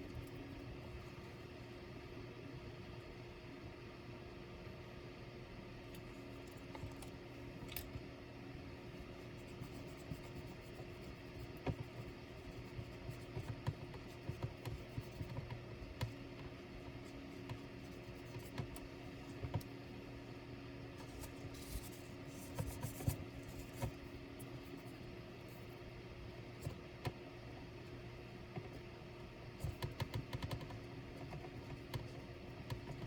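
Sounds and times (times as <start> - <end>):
laptop clicks and taps: 29.6 - 33.0.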